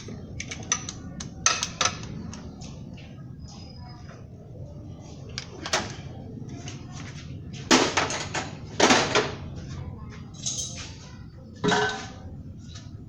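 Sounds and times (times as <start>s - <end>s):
metal tools clanking: 10.3s - 11.0s.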